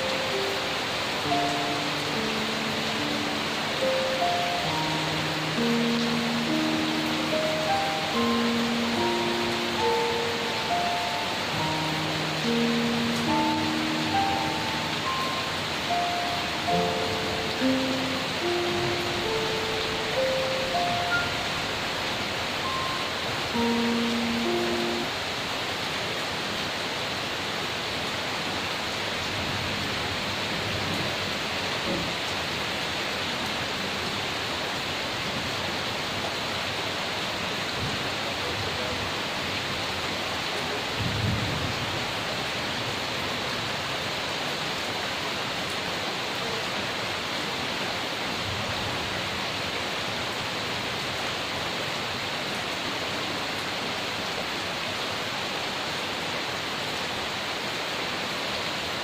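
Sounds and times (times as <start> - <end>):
heavy rain falling: 0.0 - 59.0
low rumble of thunder: 41.0 - 41.9.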